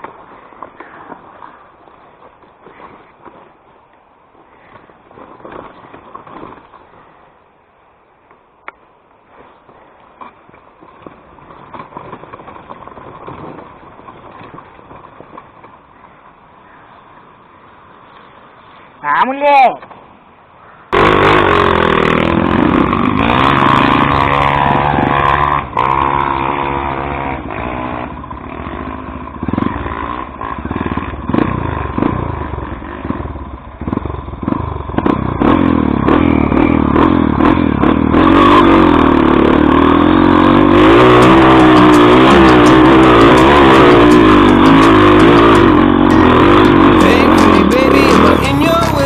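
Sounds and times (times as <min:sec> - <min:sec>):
motorcycle engine revving: 0:21.0 - 0:49.0.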